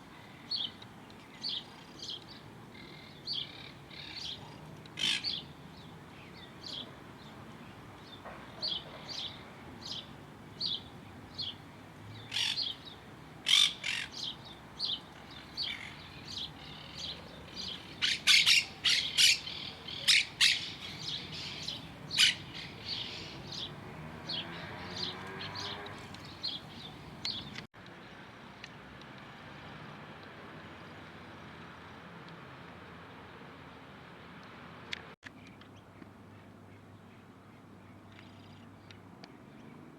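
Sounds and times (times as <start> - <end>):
birds chirping: 0.0 - 27.7.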